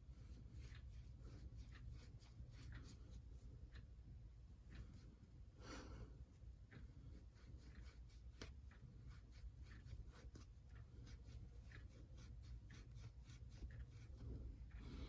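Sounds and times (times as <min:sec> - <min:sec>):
scratchy rubbing strokes: 0:07.1 - 0:14.7.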